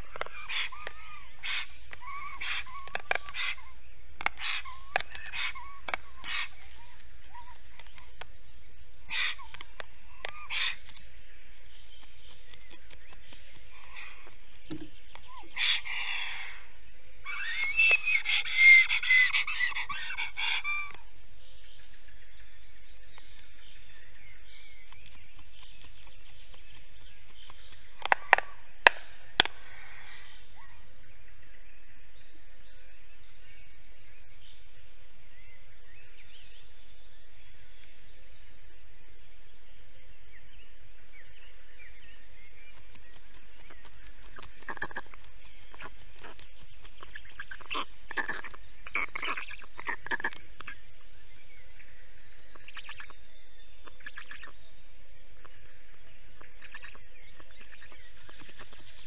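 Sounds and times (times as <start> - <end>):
noisy burst of bird calls: 0.0 - 8.1, 9.1 - 11.0, 15.3 - 21.1, 42.9 - 50.8
sharp clicks: 1.9 - 3.6, 4.2 - 6.4, 9.5 - 15.3, 23.1 - 29.6.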